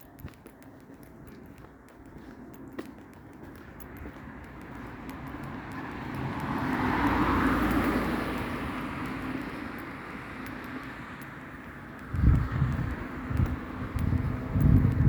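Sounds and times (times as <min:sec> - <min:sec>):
vehicle passing by: 0:04.7 - 0:11.2.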